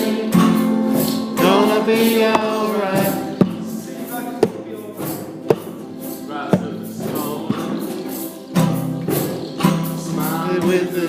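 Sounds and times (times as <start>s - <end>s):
faint singing: 0.0s - 8.9s
strummed chords: 0.0s - 11.0s
sharp percussive hit: 2.2s - 6.9s.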